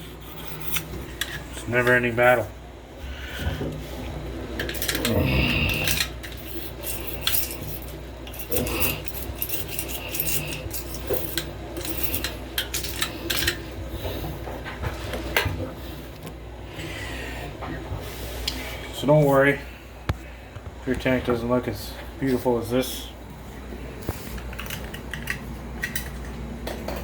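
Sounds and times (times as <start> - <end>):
blade scraping silicone off glass: 0.0 - 1.3, 5.8 - 12.3.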